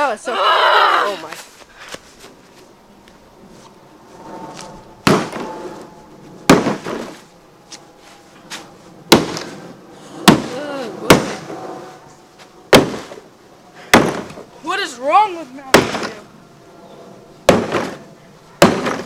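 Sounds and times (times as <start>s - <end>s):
person shouting: 0.2s - 1.3s
heavy blows on a truck: 13.9s - 14.4s, 18.6s - 19.0s.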